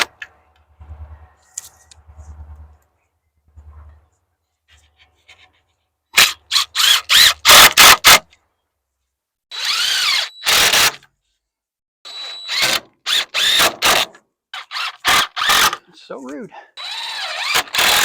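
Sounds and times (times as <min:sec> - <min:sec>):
power drill bursts: 0:06.2 - 0:08.2, 0:09.5 - 0:11.0, 0:12.1 - 0:14.0, 0:14.6 - 0:15.8, 0:16.8 - 0:18.0.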